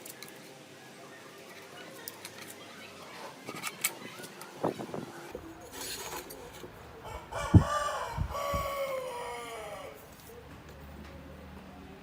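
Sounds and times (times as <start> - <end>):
rooster crowing: 7.0 - 10.0.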